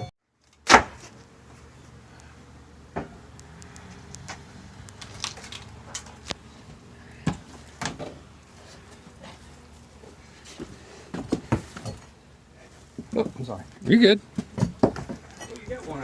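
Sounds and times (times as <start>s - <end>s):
wooden floorboards knocking: 13.0s - 15.8s.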